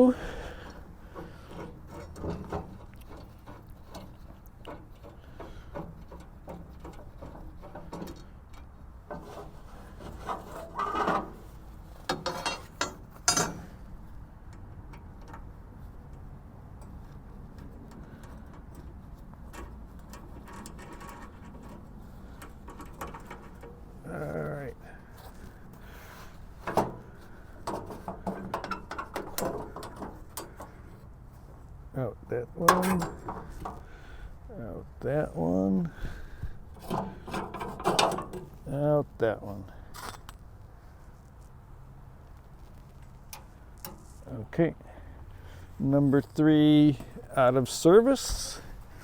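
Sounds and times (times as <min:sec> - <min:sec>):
metal clanks: 0:00.5 - 0:13.9, 0:19.5 - 0:24.1, 0:26.5 - 0:30.8, 0:32.6 - 0:33.9, 0:36.7 - 0:38.6
metal rubbing and ticking: 0:16.9 - 0:30.8.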